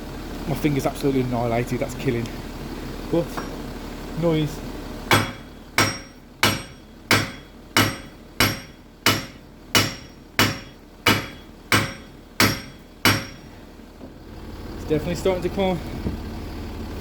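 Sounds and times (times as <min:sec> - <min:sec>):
hammer striking metal hub: 0:05.1 - 0:13.5.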